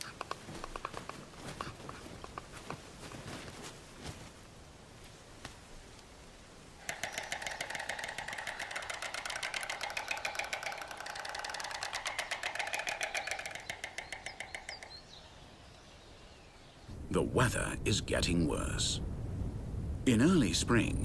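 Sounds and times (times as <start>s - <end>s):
storks clattering bills: 6.8s - 15.2s.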